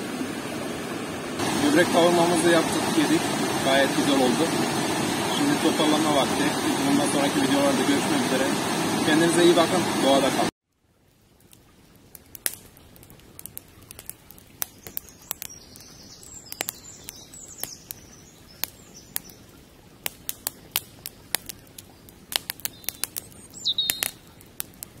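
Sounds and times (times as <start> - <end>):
faint outdoor hiss: 0.0 - 25.0
birds chirping: 1.4 - 8.5, 14.6 - 19.8, 21.0 - 24.5.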